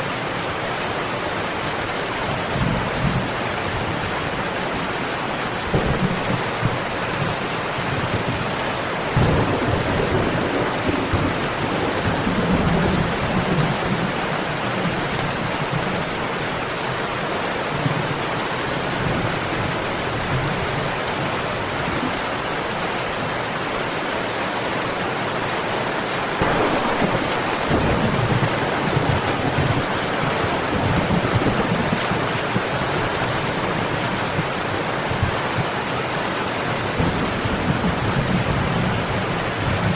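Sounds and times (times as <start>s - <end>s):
thunder rumbling: 5.6s - 16.1s, 26.4s - 35.8s
heavy rain hissing: 20.8s - 39.9s.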